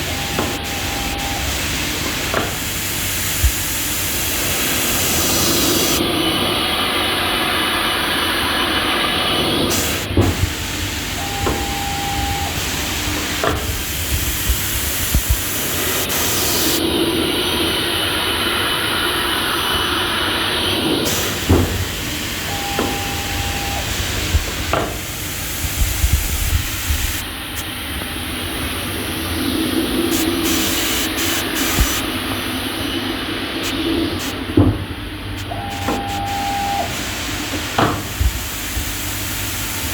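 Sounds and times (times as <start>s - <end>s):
cutting machine hissing: 0.0s - 34.6s.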